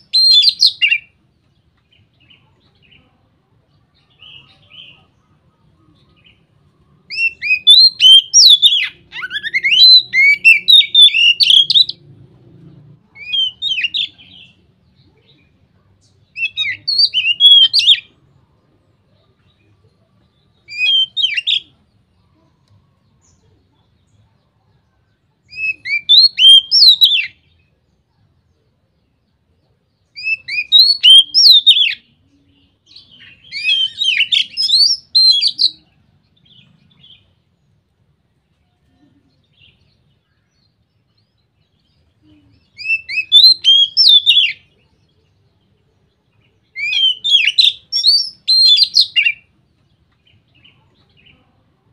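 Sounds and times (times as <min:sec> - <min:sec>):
bird singing whistled phrases: 0:00.0 - 0:01.1, 0:07.1 - 0:12.0, 0:13.2 - 0:14.5, 0:16.3 - 0:18.1, 0:20.7 - 0:21.7, 0:25.5 - 0:27.4, 0:30.2 - 0:32.1, 0:32.9 - 0:35.8, 0:42.6 - 0:44.7, 0:46.7 - 0:49.5.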